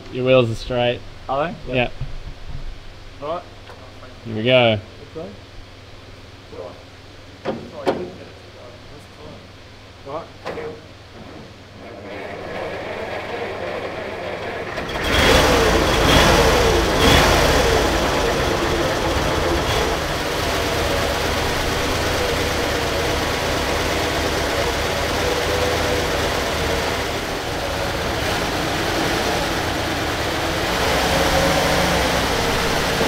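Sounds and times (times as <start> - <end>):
engine starting and idling: 11.8 - 33.0.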